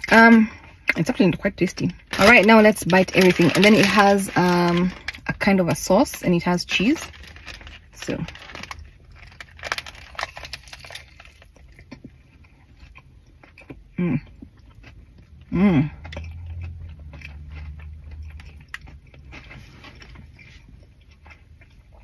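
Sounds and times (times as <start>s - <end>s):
chewing with mouth noises: 7.1s - 22.0s
crunchy bite into burger: 8.4s - 15.0s.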